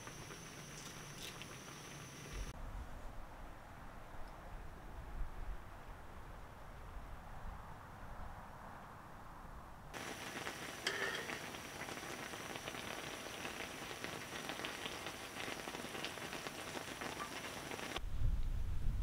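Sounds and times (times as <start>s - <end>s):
meat sizzling in a hot pan: 10.0s - 18.0s
metal tongs clink: 10.8s - 11.4s.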